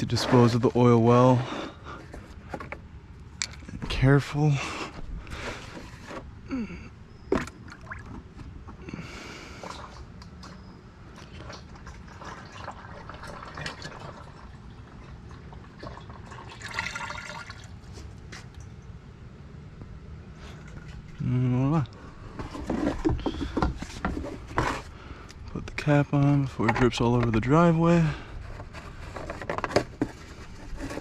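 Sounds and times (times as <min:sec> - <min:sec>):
oil trickling into container: 0:09.5 - 0:18.8.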